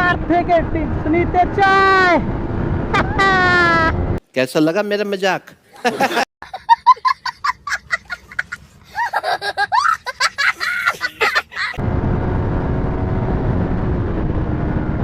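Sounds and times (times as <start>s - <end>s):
wind rush: 0.0s - 4.2s, 11.8s - 15.0s
man laughing: 2.9s - 3.9s, 5.7s - 11.8s.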